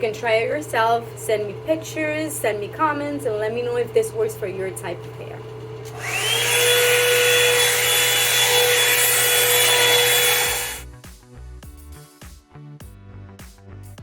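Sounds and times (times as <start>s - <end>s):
hair dryer rushing and whining: 5.4s - 10.8s
music with a beat: 10.8s - 14.0s.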